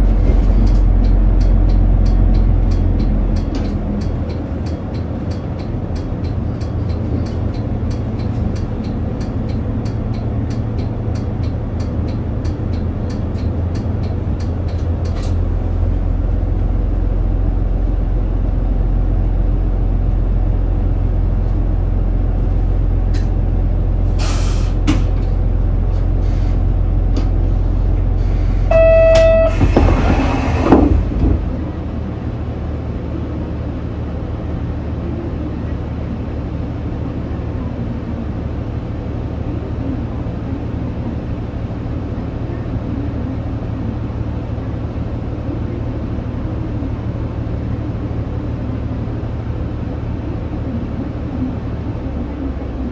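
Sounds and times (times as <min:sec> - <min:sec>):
bus diesel engine rumble: 0:00.0 - 0:52.9
short beep: 0:28.7 - 0:30.8.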